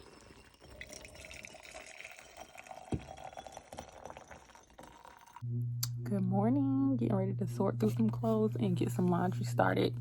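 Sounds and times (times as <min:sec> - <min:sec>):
faint liquid trickle: 0:00.0 - 0:05.4.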